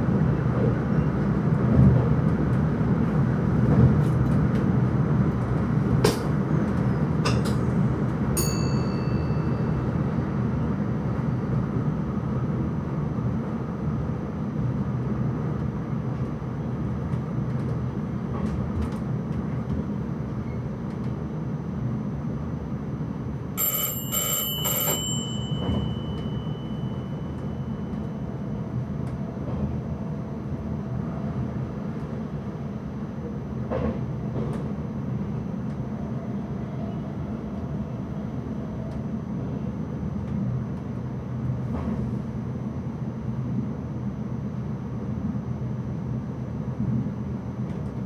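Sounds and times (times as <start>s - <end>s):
train rumbling along track: 0.0s - 48.0s
bell ringing in cab: 8.4s - 9.8s, 23.6s - 28.0s.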